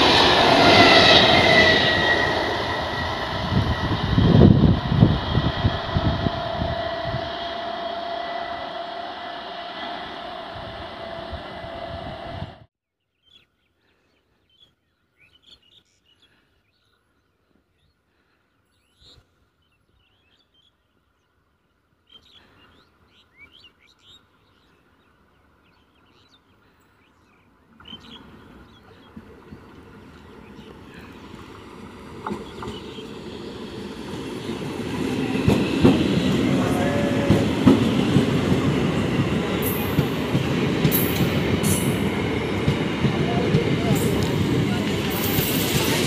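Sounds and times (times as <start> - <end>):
approaching train rumble: 0.0 - 12.7, 27.5 - 46.0
electric train running hum: 0.0 - 12.7, 28.1 - 46.0
birds chirping: 22.0 - 45.9.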